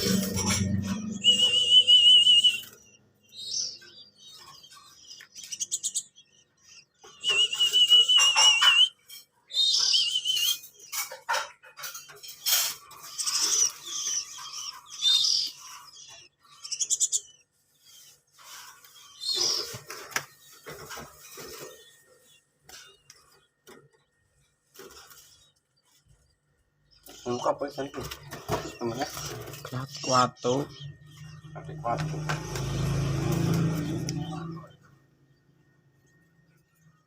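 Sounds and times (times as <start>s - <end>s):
wavering high bird trill: 0.0s - 11.2s, 11.8s - 18.2s
small birds chirping: 0.0s - 37.0s.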